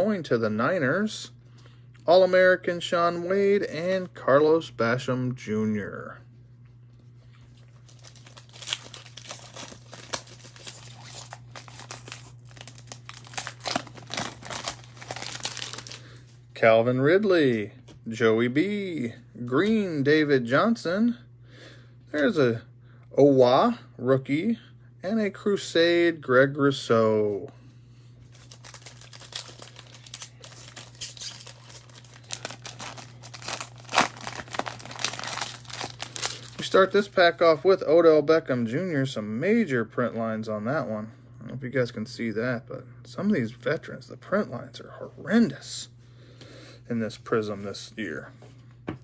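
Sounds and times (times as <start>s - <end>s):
steady low hum: 0.0s - 49.0s
card pack wrapper crinkling: 7.6s - 16.3s, 28.3s - 37.2s.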